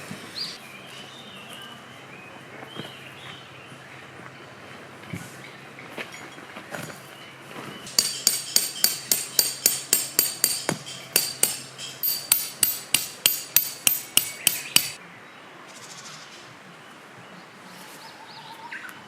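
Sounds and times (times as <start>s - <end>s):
hammer striking metal tent peg: 7.9s - 15.0s.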